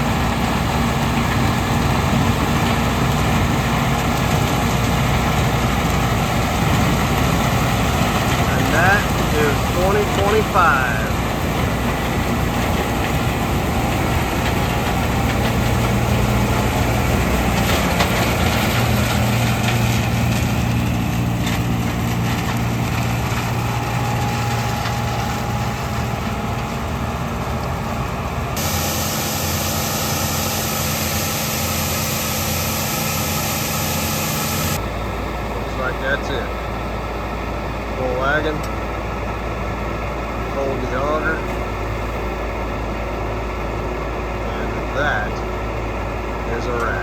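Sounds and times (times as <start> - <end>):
combine harvester running: 0.0 - 47.0
high hiss: 28.6 - 34.8.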